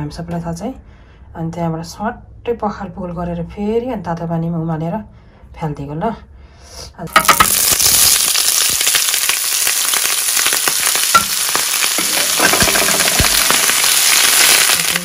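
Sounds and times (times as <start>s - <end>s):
offal sizzling in hot oil: 7.1s - 15.0s.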